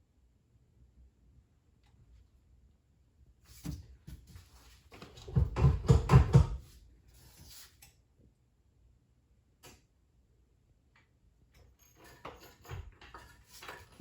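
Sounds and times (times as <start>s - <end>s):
parts and tools clanking: 11.6s - 14.0s.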